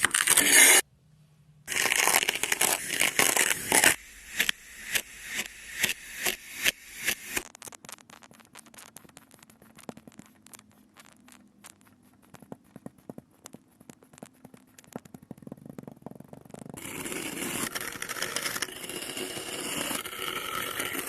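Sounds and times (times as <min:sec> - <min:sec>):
hissing cutting strokes in sand: 0:01.7 - 0:07.4
sand crumbling crackles: 0:07.4 - 0:15.1.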